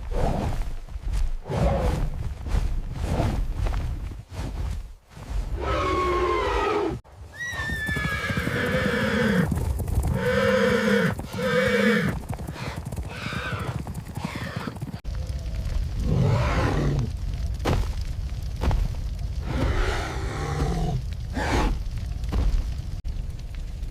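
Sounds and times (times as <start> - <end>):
horses whinnying: 5.6 - 15.0
low rumble: 15.0 - 23.9.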